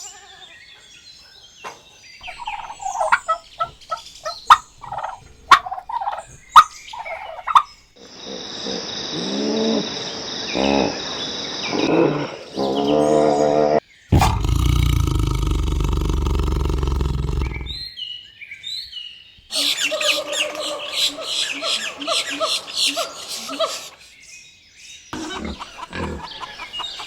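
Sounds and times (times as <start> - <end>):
turkeys gobbling: 2.2 - 7.7, 19.5 - 24.0.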